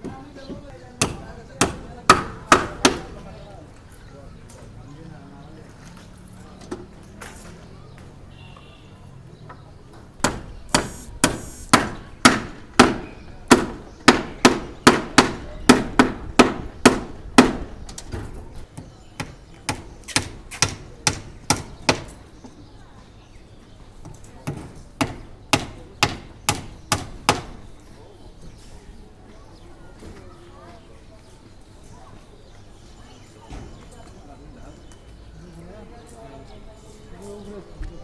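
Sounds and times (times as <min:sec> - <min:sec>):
hand hammering: 0:10.2 - 0:17.6, 0:24.4 - 0:27.5.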